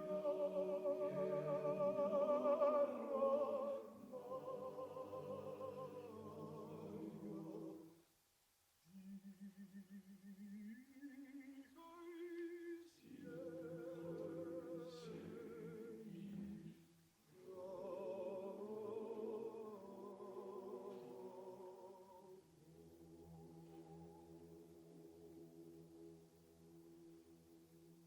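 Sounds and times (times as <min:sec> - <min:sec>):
men's choir singing a cappella: 0:00.0 - 0:08.0, 0:11.0 - 0:22.5.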